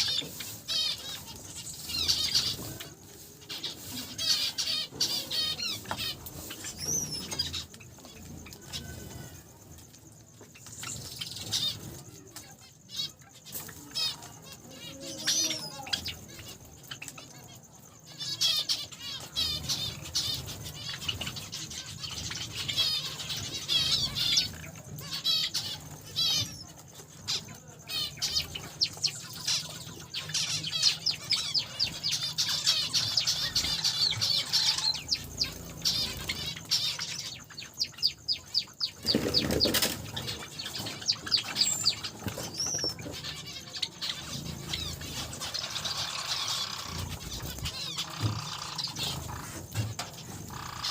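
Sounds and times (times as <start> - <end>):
finches chirping: 0.0 - 50.9
wings fluttering: 38.8 - 50.9.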